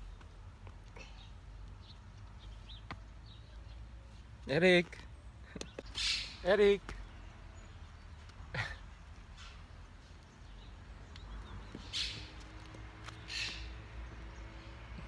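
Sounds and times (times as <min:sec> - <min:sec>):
faint outdoor background noise: 0:00.0 - 0:15.0
scratchy bird calls: 0:05.6 - 0:06.8, 0:08.2 - 0:10.6, 0:11.2 - 0:13.9.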